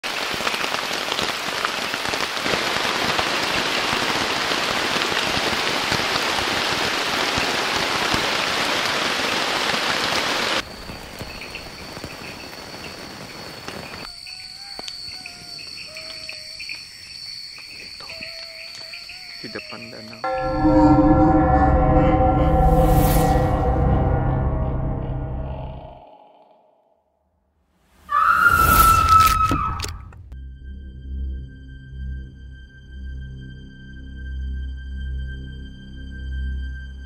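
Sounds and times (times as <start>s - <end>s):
heavy rain pouring: 0.0s - 14.1s
insects droning and chirping: 10.6s - 21.0s.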